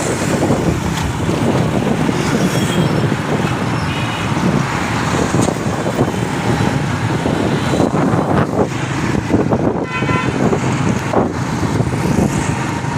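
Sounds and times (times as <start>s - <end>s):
road traffic passing: 0.0s - 12.9s
car horn toot: 9.8s - 10.5s.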